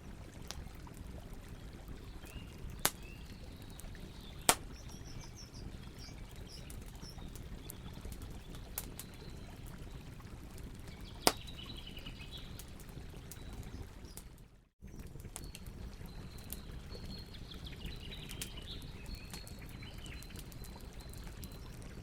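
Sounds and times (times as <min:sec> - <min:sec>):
campfire crackling: 0:00.0 - 0:22.0
birds chirping faintly: 0:00.6 - 0:22.0
fire popping sharply: 0:04.3 - 0:07.2.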